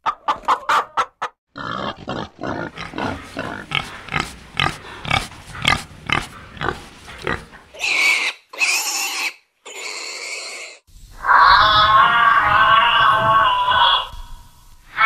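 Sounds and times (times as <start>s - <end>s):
pig grunting: 1.6s - 10.8s
pig high-pitched calls: 1.6s - 15.0s.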